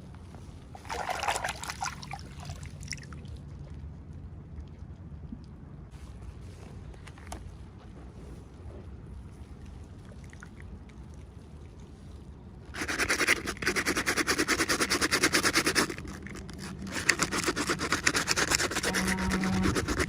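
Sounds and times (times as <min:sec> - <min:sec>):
rapid rhythmic scratching: 0:12.8 - 0:20.0
short low hum: 0:18.6 - 0:20.0.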